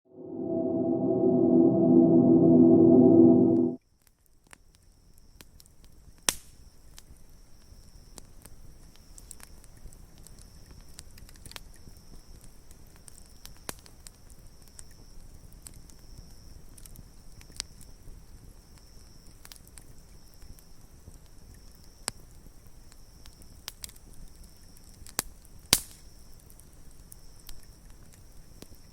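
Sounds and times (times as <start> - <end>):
gong-like chime: 0.0 - 3.8
steady high-pitched tone: 0.0 - 3.8.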